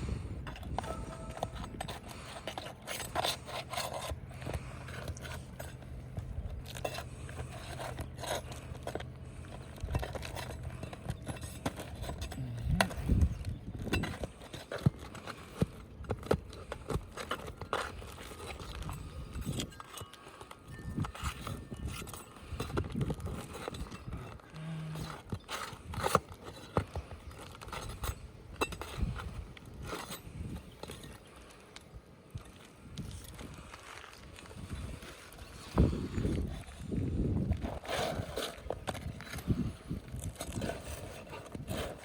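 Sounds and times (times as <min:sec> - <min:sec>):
hand tools scraping shingle: 0:00.0 - 0:42.0
steady low hum: 0:00.0 - 0:42.0.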